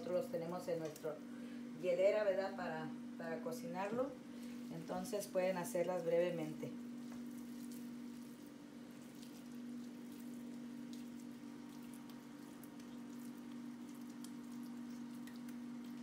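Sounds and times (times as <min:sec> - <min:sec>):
steady low hum: 0:00.0 - 0:16.0
meatballs crackling in a pan: 0:06.8 - 0:16.0.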